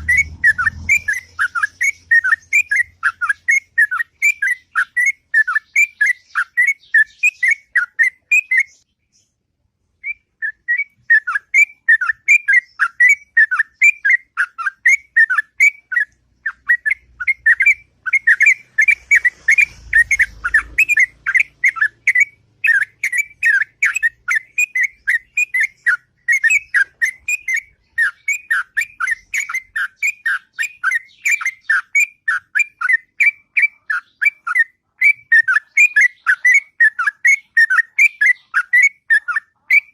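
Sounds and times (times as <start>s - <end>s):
bird whistled notes: 0.0s - 8.8s, 10.0s - 39.9s.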